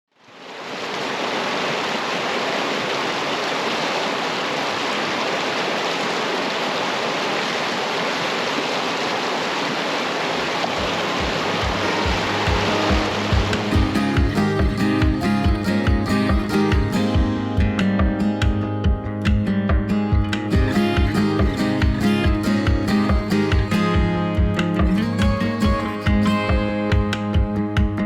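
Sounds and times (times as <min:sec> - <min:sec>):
rushing water: 0:00.1 - 0:19.4, 0:20.1 - 0:28.0
music with low even beat: 0:10.8 - 0:28.0.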